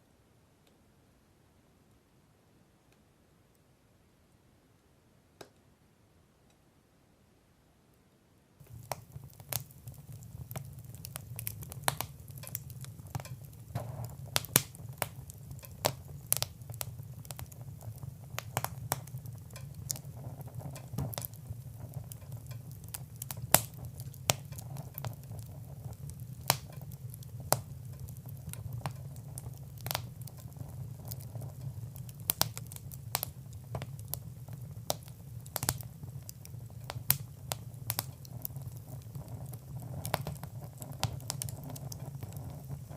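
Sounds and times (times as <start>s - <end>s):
fire crackling: 8.6s - 42.9s.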